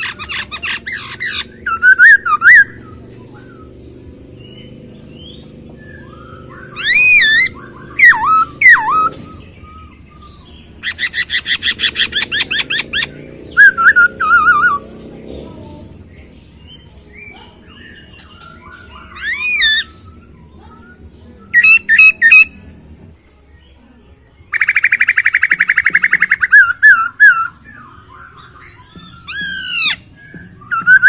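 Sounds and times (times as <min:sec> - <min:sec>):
laughingthrush singing whistled phrases: 0:00.0 - 0:03.8, 0:05.2 - 0:15.0, 0:18.0 - 0:22.6, 0:24.5 - 0:31.0.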